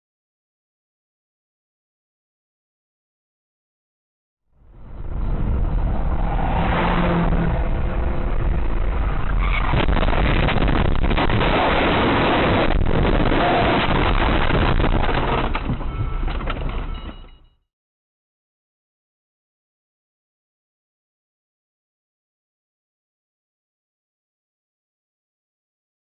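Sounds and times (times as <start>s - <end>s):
vehicle rumble and road noise: 4.5s - 17.6s.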